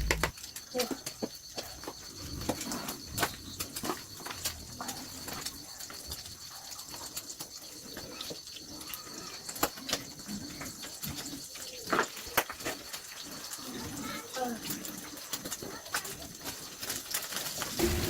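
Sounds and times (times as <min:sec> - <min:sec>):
dove cooing: 0:10.6 - 0:12.5, 0:17.8 - 0:18.0.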